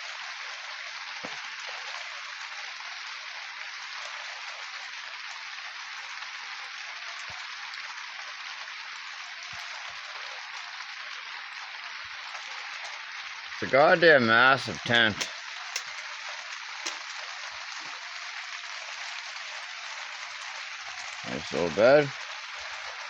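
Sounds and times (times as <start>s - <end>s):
rain pattering on a tent: 0.0s - 23.0s
faint knocks of drips: 1.2s - 1.4s.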